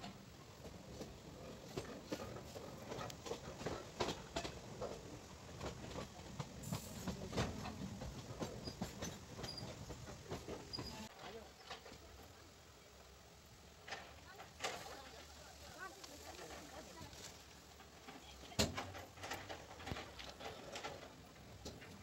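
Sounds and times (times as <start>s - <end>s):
train rumbling along track: 0.0s - 22.0s
wheels clicking on rails: 0.0s - 22.0s.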